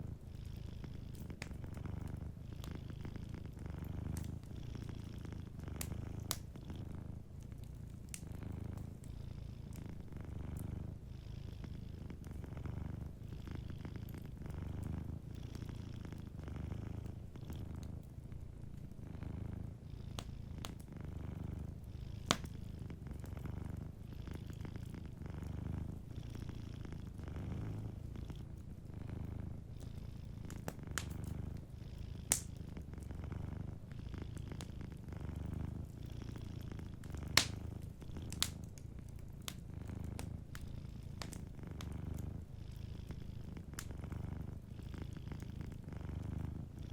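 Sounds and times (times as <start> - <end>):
cat purring: 0.0 - 46.9
fireplace popping: 5.8 - 6.6, 29.9 - 32.8, 36.9 - 42.2.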